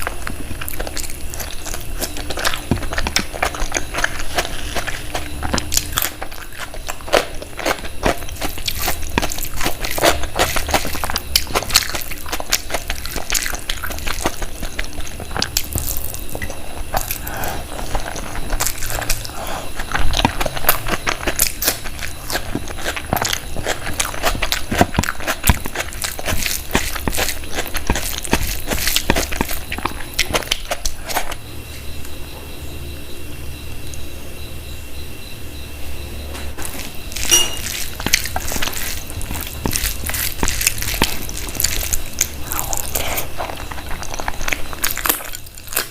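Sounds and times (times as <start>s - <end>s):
mouth clicks and smacks: 0.0s - 31.4s
person chewing: 0.0s - 31.5s, 36.6s - 45.9s.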